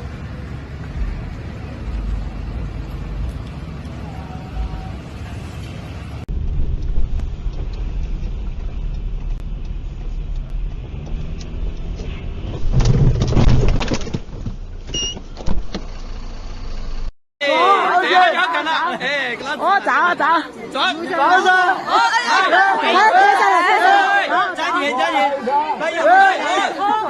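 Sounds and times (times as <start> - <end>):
car road rumble: 0.0 - 17.1
collision impact crunching: 6.3 - 15.8
short electronic beep: 14.9 - 15.2.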